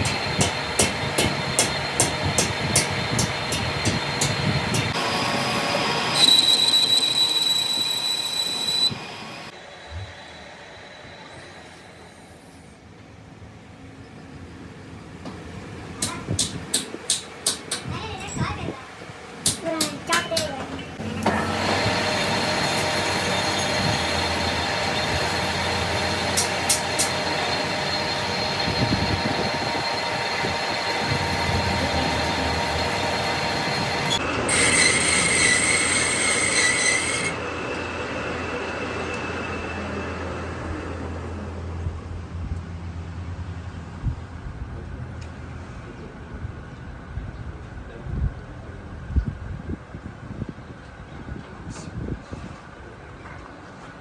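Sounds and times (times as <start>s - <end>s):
workshop background noise: 0.0s - 10.1s, 15.2s - 42.2s
metalworking machinery running: 0.0s - 12.5s, 20.4s - 42.2s
high-pitched metallic squeal: 3.2s - 9.5s, 21.0s - 41.4s.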